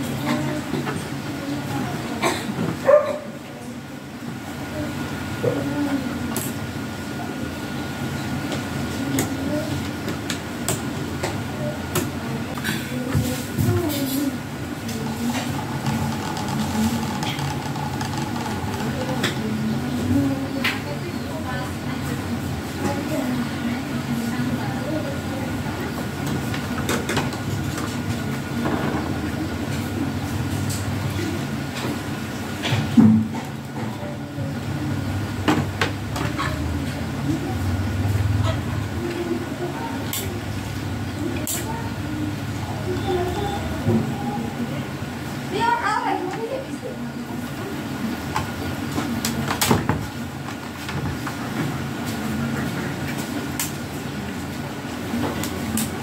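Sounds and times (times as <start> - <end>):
low mechanical hum: 0.0 - 56.0
steady low hum: 3.8 - 26.2.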